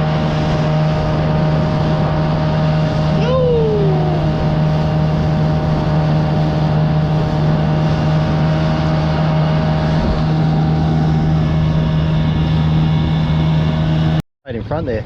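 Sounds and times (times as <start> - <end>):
rush of noise: 0.0 - 14.2
outboard motor running: 0.0 - 15.0.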